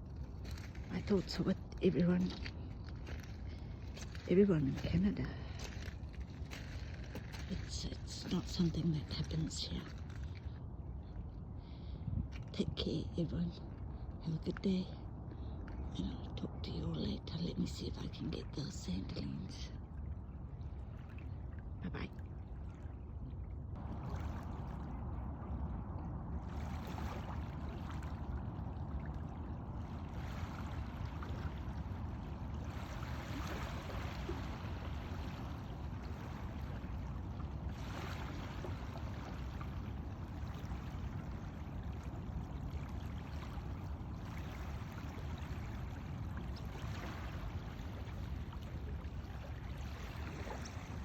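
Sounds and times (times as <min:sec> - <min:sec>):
steady low rumble: 0:00.0 - 0:51.0
water washing on shore: 0:23.8 - 0:51.0.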